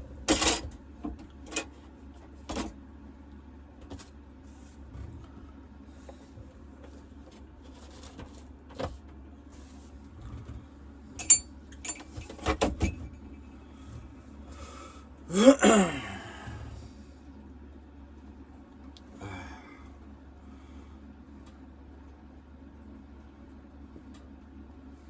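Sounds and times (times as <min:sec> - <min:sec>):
knocks and clatters of handling: 0:00.2 - 0:02.8, 0:11.2 - 0:13.4.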